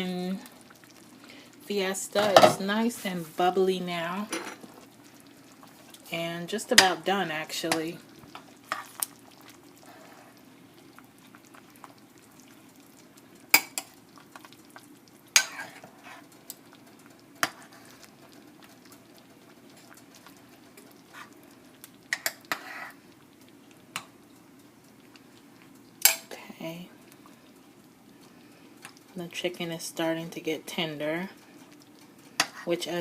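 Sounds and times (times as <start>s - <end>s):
faint steady bubbling: 0.0s - 33.0s
spoon stirring in pot: 4.2s - 26.4s, 31.2s - 33.0s.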